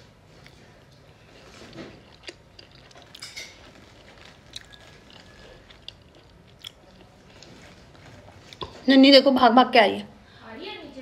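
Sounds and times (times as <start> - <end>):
person chewing: 0.3 - 8.8.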